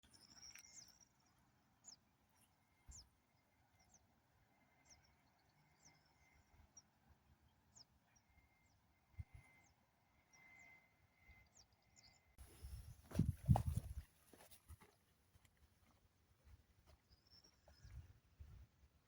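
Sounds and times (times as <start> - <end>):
faint bird chirps: 0.0 - 13.3, 16.8 - 18.7.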